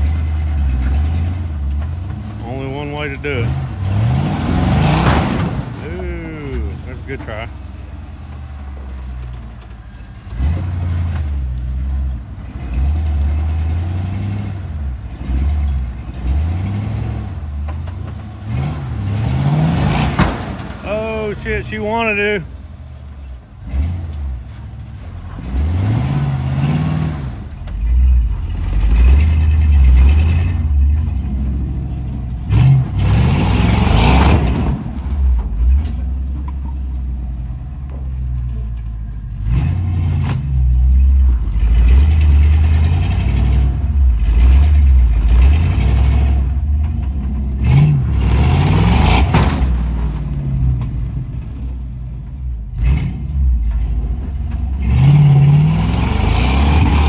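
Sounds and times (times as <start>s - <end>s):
off-road engine revving: 0.0s - 57.0s.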